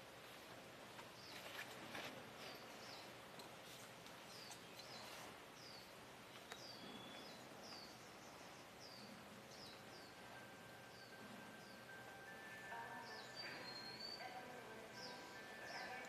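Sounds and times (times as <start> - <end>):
faint outdoor background: 0.0 - 16.0
small bird chirping: 4.2 - 12.0, 13.0 - 16.0.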